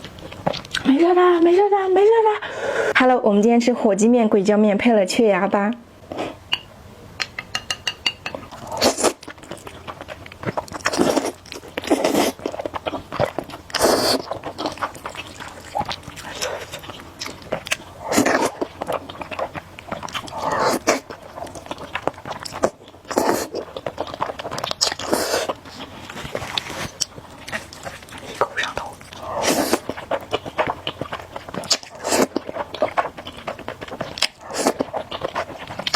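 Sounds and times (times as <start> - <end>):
wet chewing: 0.0 - 1.7, 7.2 - 35.9
noisy noodle slurps: 10.5 - 12.5, 13.7 - 16.8, 20.2 - 21.6, 22.5 - 27.0, 27.6 - 30.7, 31.5 - 35.9.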